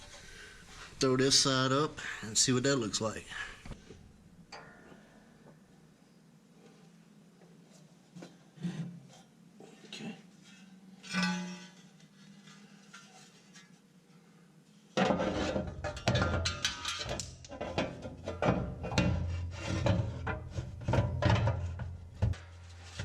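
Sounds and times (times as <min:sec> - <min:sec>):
metal plate scraping mower deck: 0:15.0 - 0:23.0.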